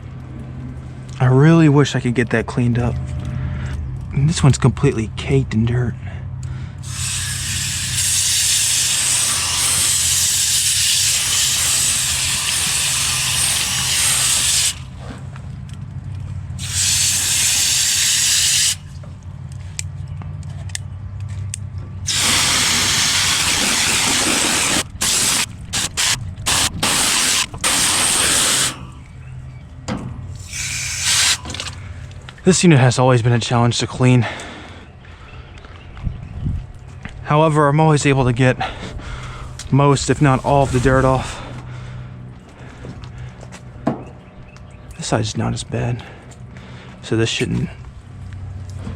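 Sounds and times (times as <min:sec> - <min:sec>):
steady low hum: 0:00.0 - 0:48.9
hose spraying water on metal coil: 0:06.8 - 0:15.0, 0:16.6 - 0:18.8, 0:22.1 - 0:29.0, 0:30.4 - 0:31.8, 0:40.1 - 0:41.2.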